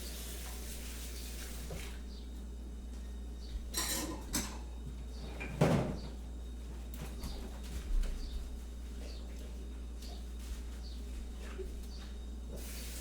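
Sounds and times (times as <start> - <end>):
crockery and cutlery clattering: 3.7 - 4.7.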